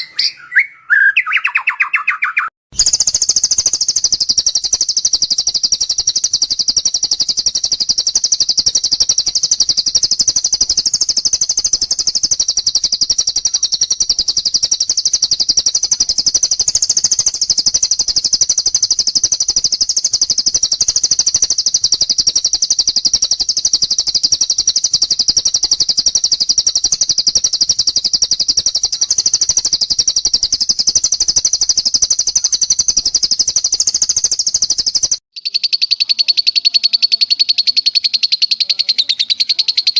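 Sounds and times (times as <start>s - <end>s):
songbird rapid high trilling: 0.0s - 39.9s.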